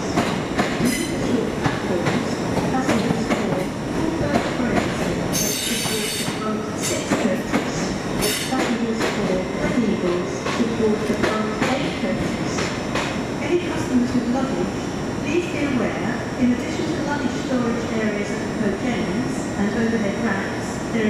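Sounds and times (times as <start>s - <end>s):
train wheels knocking on rails: 0.0s - 9.8s, 10.4s - 13.2s.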